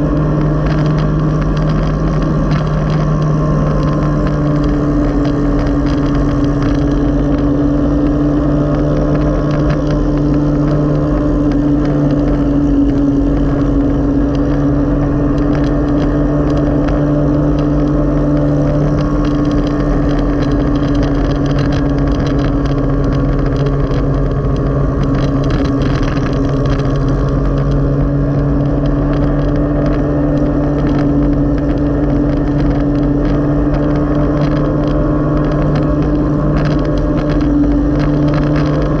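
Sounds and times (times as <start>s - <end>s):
motorcycle engine cruising: 0.0s - 39.0s
road noise: 0.0s - 39.0s.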